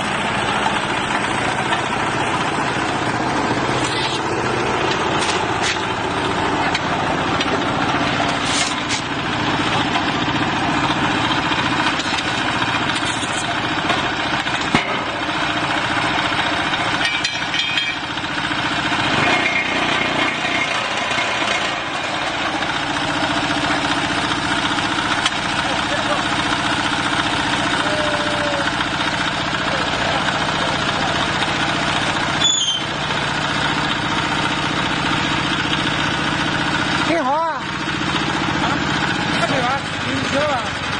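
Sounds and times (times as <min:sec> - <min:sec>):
dense mechanical din: 0:00.0 - 0:15.3
diesel engine running: 0:00.0 - 0:40.9.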